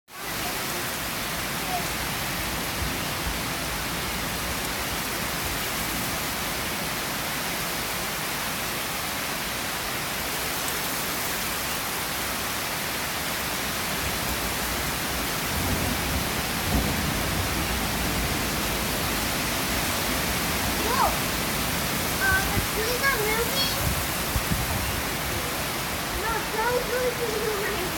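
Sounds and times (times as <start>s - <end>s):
heavy rain hissing: 0.2s - 27.9s
low thunder rumble: 15.4s - 26.6s.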